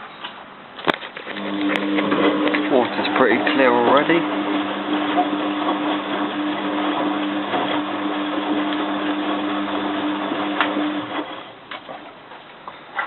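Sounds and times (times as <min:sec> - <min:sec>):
washing machine hum: 0:01.3 - 0:11.6.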